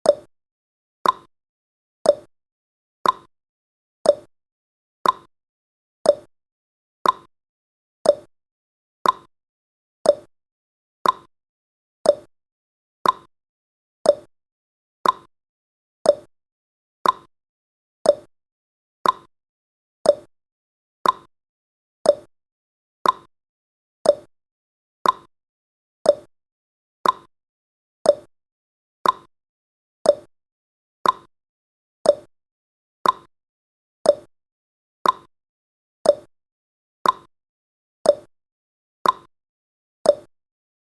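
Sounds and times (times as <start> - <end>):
timer ticking: 0.0 - 0.3, 1.0 - 1.3, 2.0 - 2.3, 3.0 - 3.3, 4.0 - 4.3, 5.0 - 5.3, 6.0 - 6.3, 7.0 - 7.3, 8.0 - 8.3, 9.0 - 9.3, 10.0 - 10.3, 11.0 - 11.3, 12.0 - 12.3, 13.0 - 13.3, 14.0 - 14.3, 15.0 - 15.3, 16.0 - 16.3, 17.0 - 17.3, 18.0 - 18.3, 19.0 - 19.3, 20.0 - 20.3, 21.0 - 21.3, 22.0 - 22.3, 23.0 - 23.3, 24.0 - 24.3, 25.0 - 25.3, 26.0 - 26.3, 27.0 - 27.3, 28.0 - 28.3, 29.0 - 29.3, 30.0 - 30.3, 31.0 - 31.3, 32.0 - 32.3, 33.0 - 33.3, 34.0 - 34.3, 35.0 - 35.3, 36.0 - 36.3, 37.0 - 37.3, 38.0 - 38.3, 39.0 - 39.3, 40.1 - 40.3.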